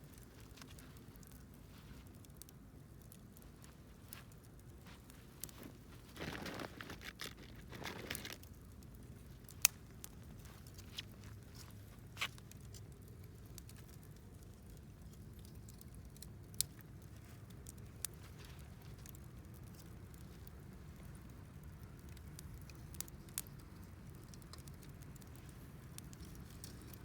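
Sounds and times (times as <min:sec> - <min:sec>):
rustling and crunching: 0:00.0 - 0:02.4, 0:03.0 - 0:13.0
fire popping: 0:00.0 - 0:27.0
wood fire crackling: 0:00.0 - 0:27.0.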